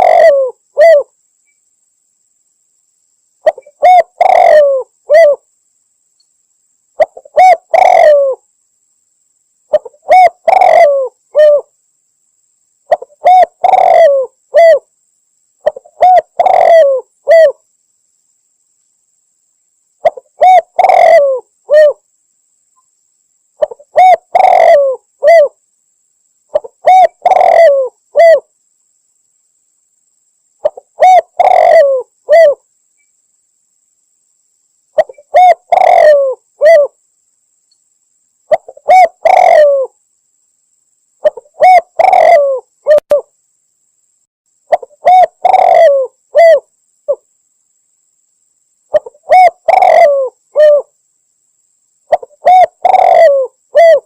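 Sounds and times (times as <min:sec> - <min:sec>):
dove cooing: 0:00.0 - 0:01.1, 0:03.4 - 0:05.4, 0:07.0 - 0:08.4, 0:09.7 - 0:11.7, 0:12.9 - 0:14.9, 0:15.6 - 0:17.6, 0:20.0 - 0:22.0, 0:23.6 - 0:25.6, 0:26.5 - 0:28.5, 0:30.6 - 0:32.6, 0:35.0 - 0:37.0, 0:38.5 - 0:40.0, 0:41.2 - 0:43.3, 0:44.7 - 0:47.2, 0:48.9 - 0:50.9, 0:52.1 - 0:54.0.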